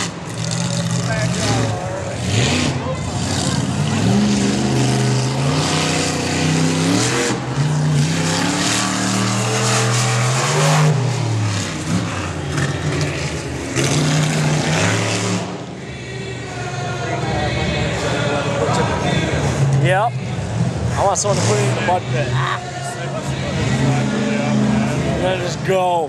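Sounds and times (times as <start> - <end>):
truck engine revving hard: 0.0 - 26.0.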